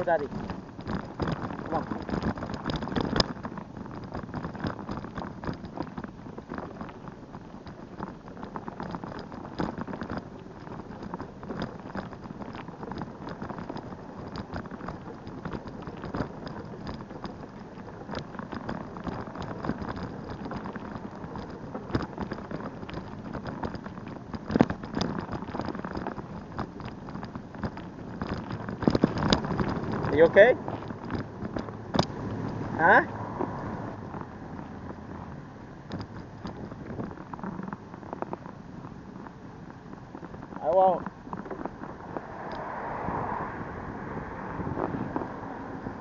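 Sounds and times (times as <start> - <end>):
bicycle tyres rolling on path: 0.0 - 46.0.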